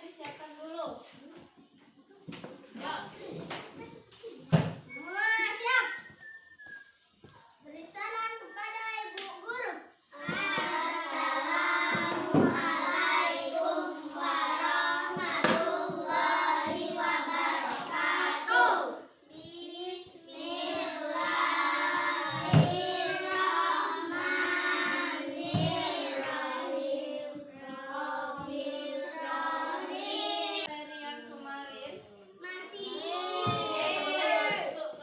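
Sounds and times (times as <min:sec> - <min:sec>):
children singing: 0:10.1 - 0:30.8, 0:32.4 - 0:35.0.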